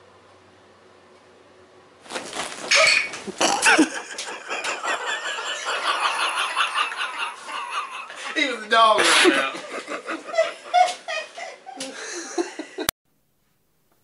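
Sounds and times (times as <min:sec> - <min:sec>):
people laughing: 0:03.4 - 0:12.9
people talking: 0:08.2 - 0:09.7.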